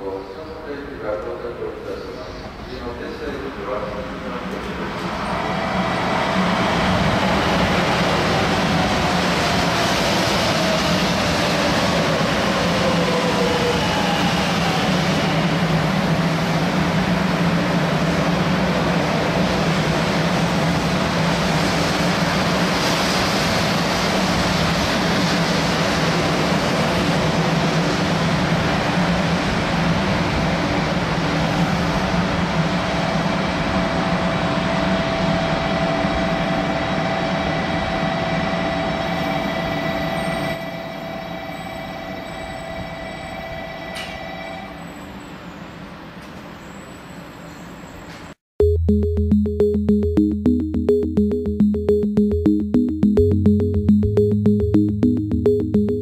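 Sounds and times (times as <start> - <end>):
train wheels and air rushing: 1.9 - 38.8.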